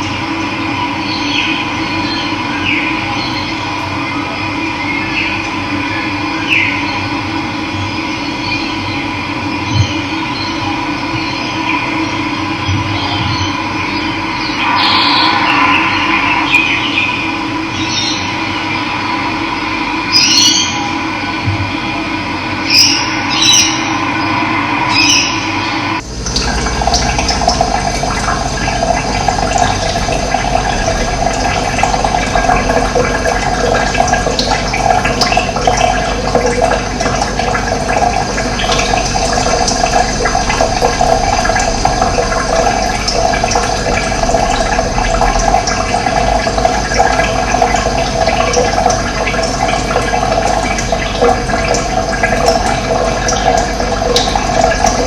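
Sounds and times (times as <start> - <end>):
running water rushing: 12.6 - 21.4, 22.6 - 55.0.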